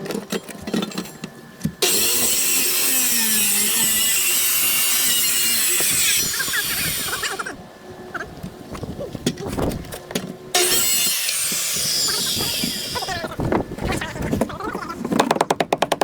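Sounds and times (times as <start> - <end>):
power saw cutting: 1.8 - 7.6, 10.5 - 13.2.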